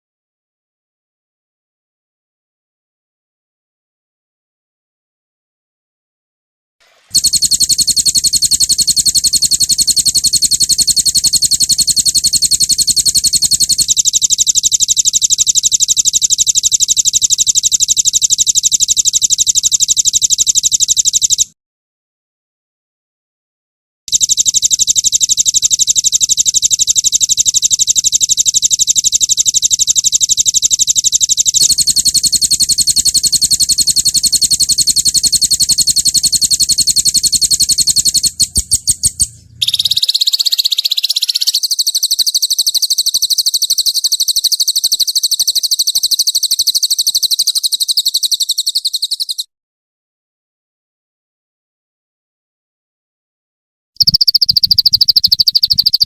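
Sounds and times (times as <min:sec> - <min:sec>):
songbird rolling trills: 0:31.6 - 0:49.4.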